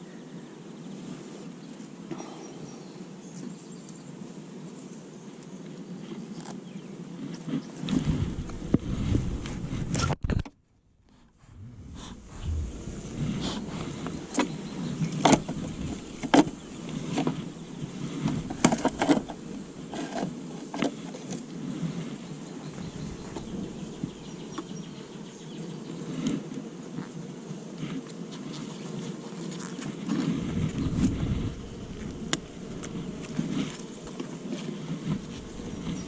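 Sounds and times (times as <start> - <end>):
honeybees buzzing: 0.5 - 8.7, 11.5 - 36.0
clicks and knocks from hive: 13.9 - 21.6, 25.8 - 36.0.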